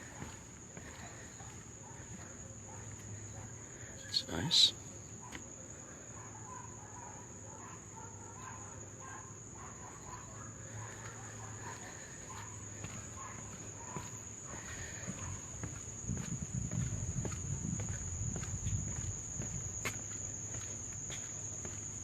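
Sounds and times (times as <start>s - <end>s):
footsteps on wooden boardwalk: 0.0s - 3.8s, 10.8s - 22.0s
insects buzzing: 0.0s - 22.0s.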